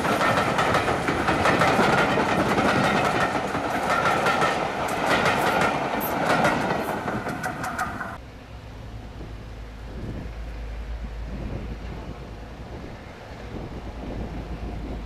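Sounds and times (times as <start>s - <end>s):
wheels clicking over rail joints: 0.0s - 8.2s
train running on rails: 0.0s - 15.0s.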